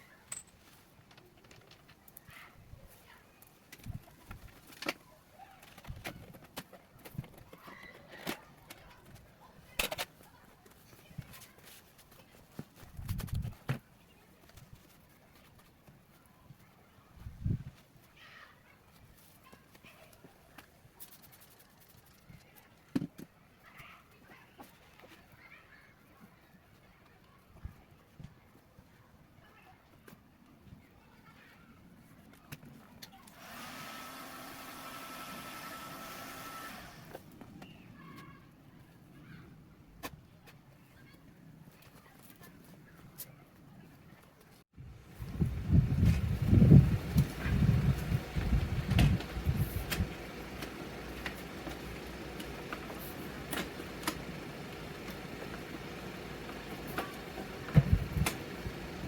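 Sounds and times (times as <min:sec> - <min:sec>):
hot-air blower hissing: 0:33.4 - 0:37.2, 0:45.2 - 0:59.0.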